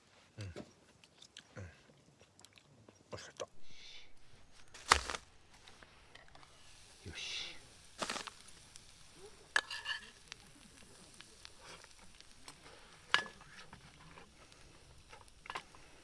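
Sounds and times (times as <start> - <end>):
faint food sizzling: 3.2 - 16.0.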